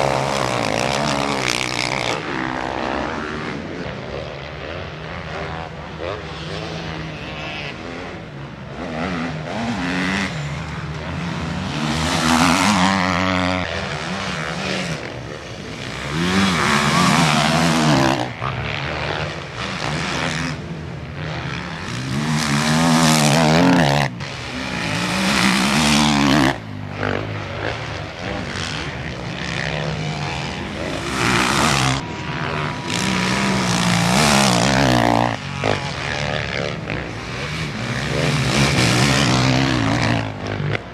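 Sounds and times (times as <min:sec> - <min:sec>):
motocross bikes revving past: 0:00.0 - 0:40.9.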